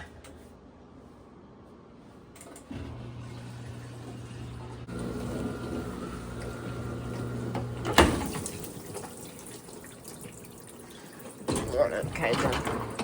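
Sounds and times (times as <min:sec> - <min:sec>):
water running: 0:03.2 - 0:13.0.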